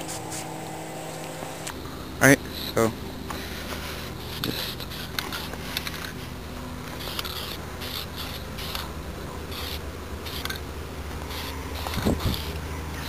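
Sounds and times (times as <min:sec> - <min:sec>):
spray can hissing: 0:09.5 - 0:10.6, 0:11.2 - 0:12.6.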